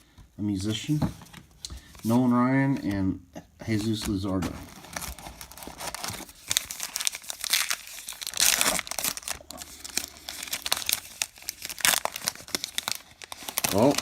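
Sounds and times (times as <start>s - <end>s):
foil wrapper crinkling: 3.8s - 14.0s.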